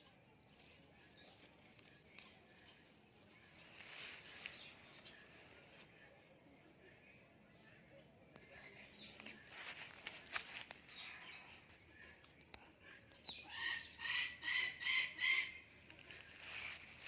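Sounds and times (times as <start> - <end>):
parrot harsh calls: 13.6 - 15.6.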